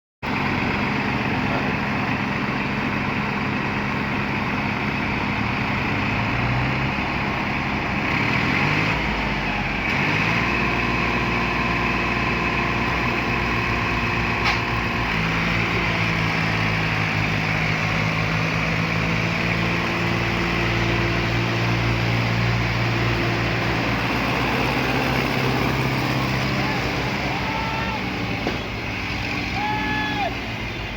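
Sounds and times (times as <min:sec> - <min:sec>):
tractor diesel engine under load: 0:00.2 - 0:30.9.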